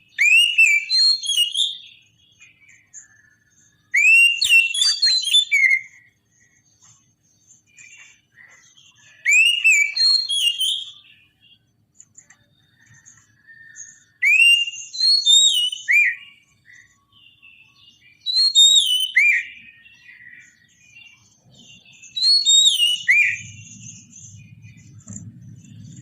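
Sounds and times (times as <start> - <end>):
soft bird twittering: 0.0 - 26.0
bird whistling phrases: 0.1 - 6.1, 7.8 - 11.2, 12.8 - 16.4, 18.2 - 20.7, 21.7 - 24.1
faint low rumble: 23.3 - 26.0.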